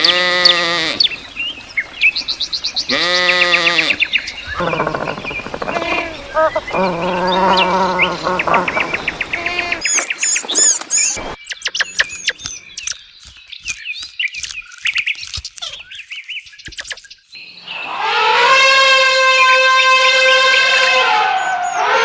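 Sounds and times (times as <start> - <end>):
small birds chirping: 0.0 - 18.0
wavering animal call: 2.9 - 10.0, 17.7 - 22.0.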